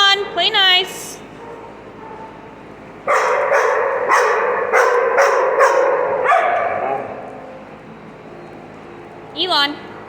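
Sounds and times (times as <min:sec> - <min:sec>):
dog yips and barks: 0:03.1 - 0:07.2
dog whining yowl: 0:03.1 - 0:07.4.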